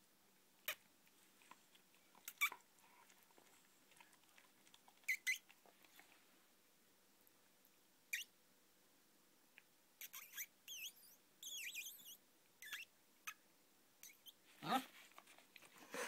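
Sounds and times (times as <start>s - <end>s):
puppy making sharp noises: 2.1s - 3.0s, 3.9s - 5.6s, 10.0s - 13.4s.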